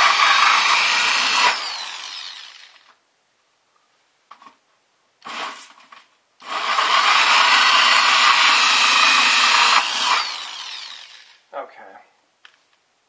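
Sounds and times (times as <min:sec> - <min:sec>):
drill winding down whine: 0:00.0 - 0:02.9, 0:06.4 - 0:11.4
power drill hole saw cutting: 0:00.0 - 0:02.9, 0:05.2 - 0:05.7, 0:06.4 - 0:11.4.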